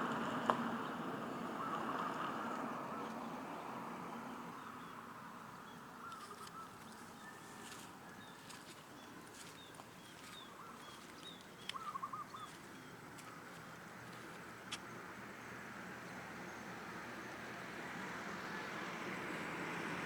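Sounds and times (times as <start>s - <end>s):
faint outdoor ambience: 0.0s - 20.0s
small birds chirping: 4.4s - 16.6s.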